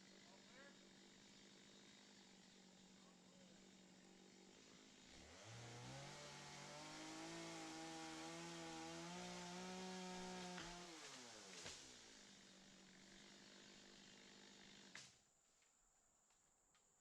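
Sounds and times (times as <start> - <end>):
small engine revving: 4.6 - 15.1.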